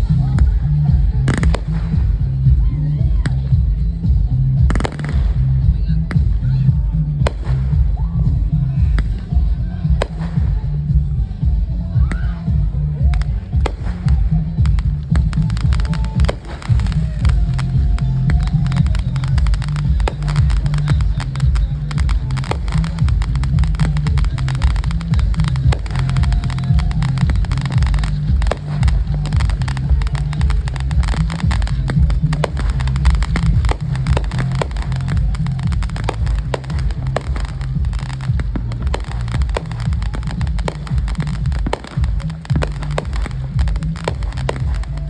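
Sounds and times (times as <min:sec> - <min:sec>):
deep low rumble: 0:00.0 - 0:45.0
fireworks crackling pops: 0:00.0 - 0:45.0.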